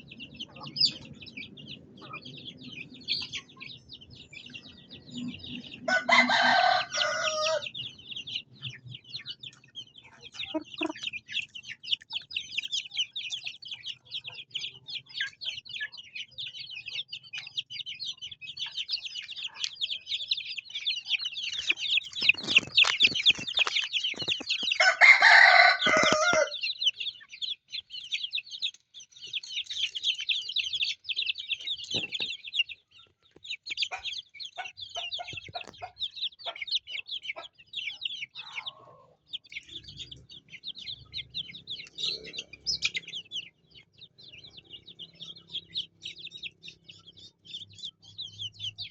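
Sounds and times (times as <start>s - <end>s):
chicks peeping: 0.0s - 48.9s
adult chicken call: 5.9s - 7.7s, 10.4s - 11.0s, 24.8s - 26.6s, 38.4s - 39.2s.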